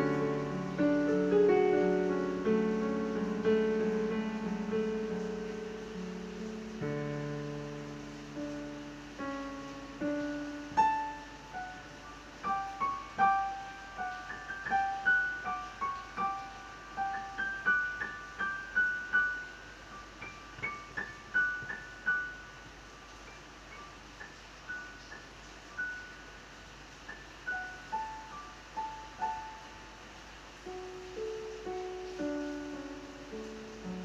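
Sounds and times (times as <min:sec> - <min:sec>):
slow piano music: 0:00.0 - 0:34.0.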